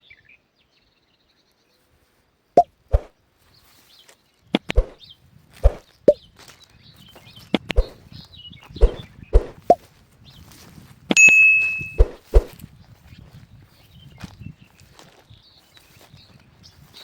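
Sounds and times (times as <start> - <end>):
metal strike ringing: 11.2 - 12.2.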